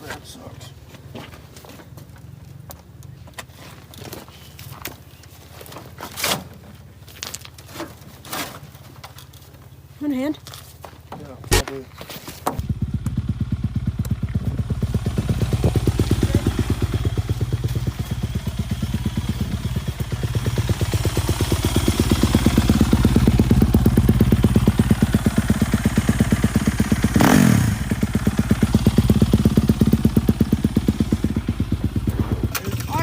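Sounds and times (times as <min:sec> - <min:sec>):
pit bike engine running: 0:12.6 - 0:33.0.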